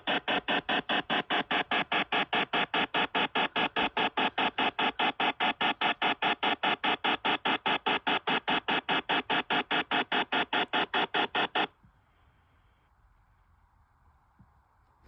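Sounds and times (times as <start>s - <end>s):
dial-up modem noise: 0.0s - 11.8s.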